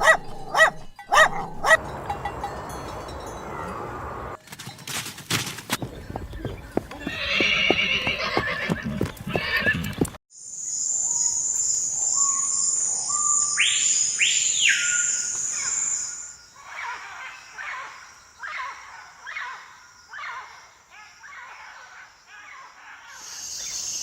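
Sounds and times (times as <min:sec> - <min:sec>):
clip-clopping hooves: 0:04.4 - 0:10.2
horse neighing: 0:05.9 - 0:10.2
birds whistling: 0:11.1 - 0:16.4.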